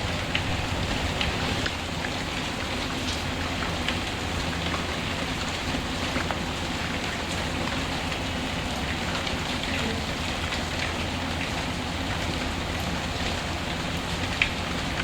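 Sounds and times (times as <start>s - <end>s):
wood fire crackling: 0.0s - 3.3s
steady rain falling: 0.0s - 15.0s.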